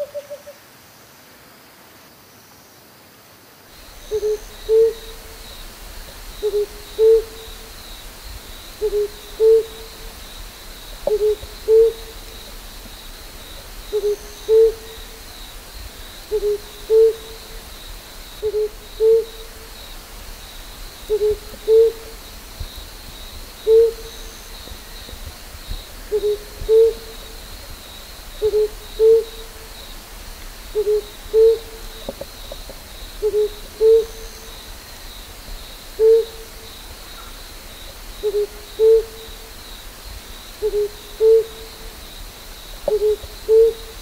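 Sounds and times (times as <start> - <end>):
faint insect trill: 0.0 - 44.0
owl hooting: 4.0 - 5.4, 6.4 - 7.7, 8.8 - 10.1, 11.1 - 12.3, 13.9 - 15.2, 16.3 - 17.6, 18.4 - 19.6, 21.1 - 22.2, 23.6 - 24.4, 26.1 - 27.2, 28.4 - 29.6, 30.8 - 32.6, 33.2 - 34.4, 36.0 - 36.5, 38.2 - 39.2, 40.6 - 41.6, 42.9 - 44.0.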